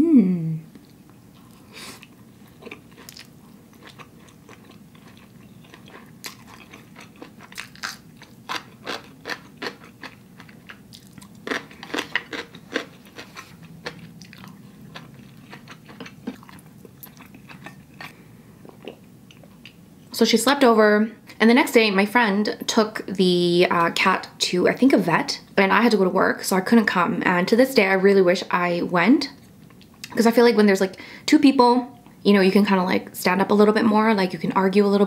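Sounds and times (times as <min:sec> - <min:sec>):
chewing and lip smacks: 0:00.7 - 0:19.8.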